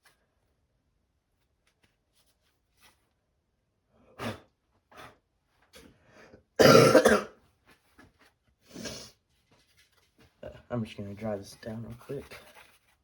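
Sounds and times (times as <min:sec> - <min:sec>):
man coughing: 0:06.6 - 0:07.3.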